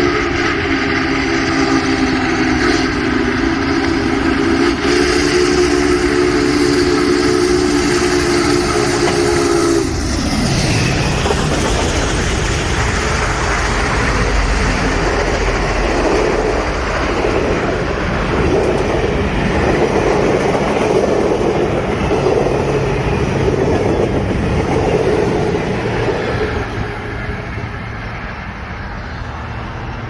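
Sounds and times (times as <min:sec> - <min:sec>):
steam train rumbling and rattling: 0:00.0 - 0:30.0.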